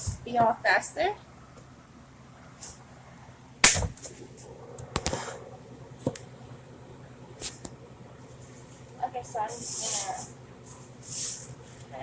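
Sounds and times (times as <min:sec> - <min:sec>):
sharp knock: 0:03.6 - 0:04.0.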